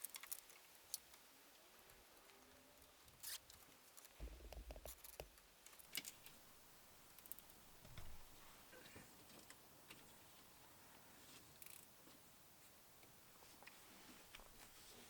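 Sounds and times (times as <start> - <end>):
low thudding: 4.2 - 4.9
hand handling clicks and knocks: 4.2 - 6.3.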